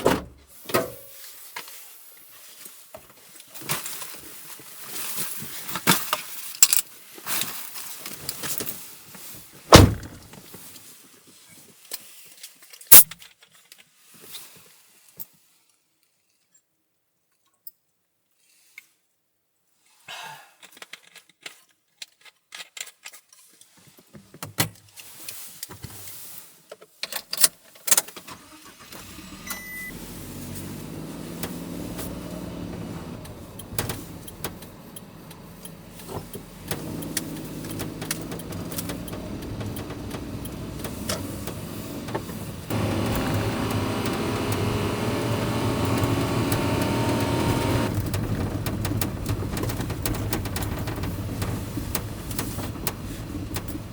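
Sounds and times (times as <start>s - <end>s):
small truck engine running: 9.7s - 10.4s, 28.4s - 53.9s
clicks and knocks: 31.4s - 53.9s.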